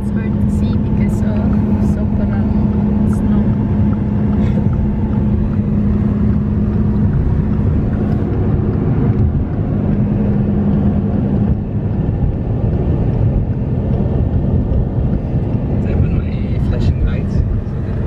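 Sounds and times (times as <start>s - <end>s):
car engine and tyre rumble: 0.0s - 18.0s
constant hum: 0.0s - 18.0s.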